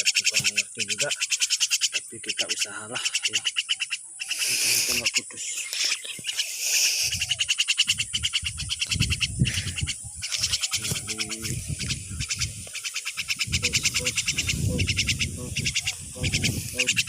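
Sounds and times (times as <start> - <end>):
insects or frogs calling: 0.0 - 17.0.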